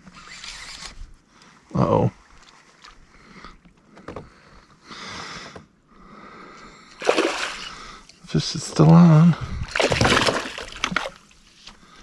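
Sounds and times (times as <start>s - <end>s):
fish splashing at surface: 7.0s - 7.8s, 9.8s - 11.1s
water rushing: 7.0s - 7.8s.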